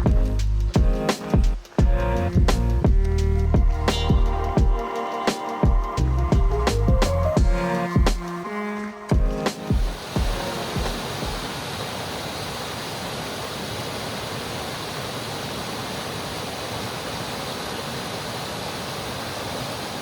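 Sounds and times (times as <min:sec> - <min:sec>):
waterfall rushing: 0:09.5 - 0:20.0.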